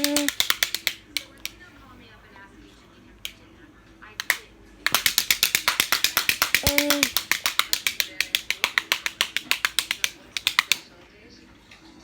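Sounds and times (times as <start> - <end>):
rapid sharp clicks: 0.0 - 1.6, 4.2 - 10.8.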